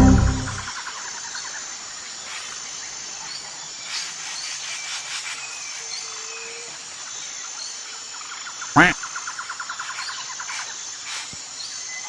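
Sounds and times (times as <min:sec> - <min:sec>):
high insect drone: 0:00.0 - 0:12.0
hiss: 0:03.7 - 0:06.7, 0:09.8 - 0:11.6.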